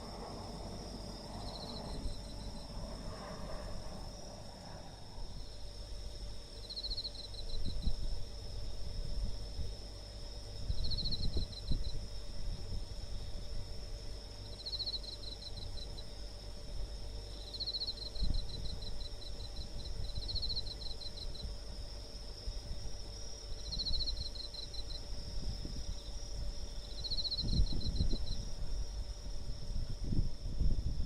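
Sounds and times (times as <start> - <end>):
low rumble: 0.0 - 6.0
cricket chirping: 0.0 - 31.0
high-pitched insect trill: 0.0 - 31.0.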